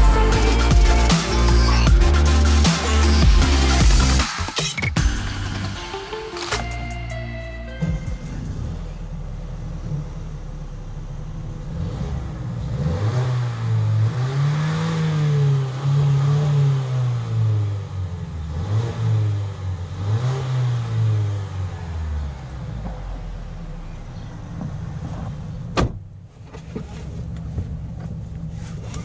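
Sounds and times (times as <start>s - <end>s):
car engine accelerating: 7.7s - 29.0s.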